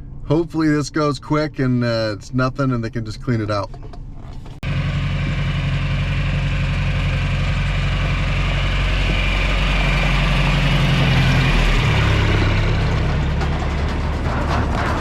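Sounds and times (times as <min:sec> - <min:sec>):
large engine running: 0:04.0 - 0:15.0.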